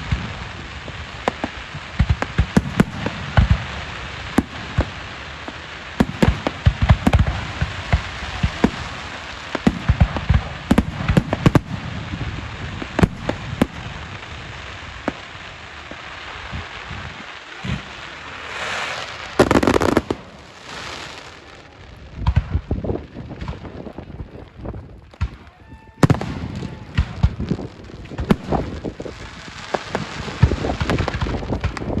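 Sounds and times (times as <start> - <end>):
firework hissing rush: 0.0 - 21.5
fireworks bangs and crackling: 0.0 - 32.0.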